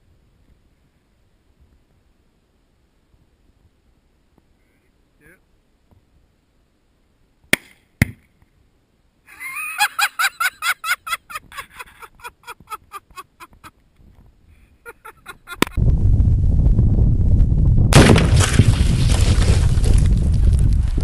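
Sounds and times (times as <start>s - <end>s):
heavy explosion blast: 15.8s - 21.0s
sharp cracks: 17.9s - 21.0s.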